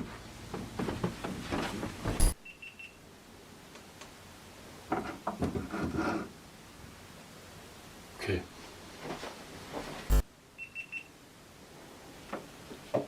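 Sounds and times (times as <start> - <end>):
high electronic beeps: 2.2 - 2.4
sharp click: 2.2 - 2.4.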